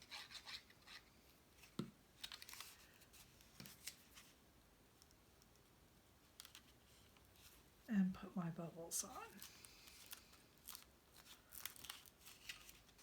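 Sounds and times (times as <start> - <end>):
paper rustling: 1.6 - 4.4, 9.3 - 13.0.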